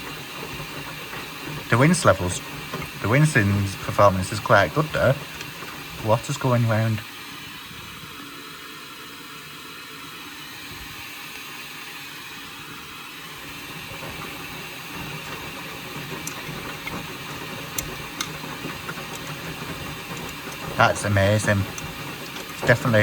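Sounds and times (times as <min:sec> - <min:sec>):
washing machine drum tumbling: 0:13.5 - 0:23.0
rinse water swishing: 0:13.7 - 0:23.0.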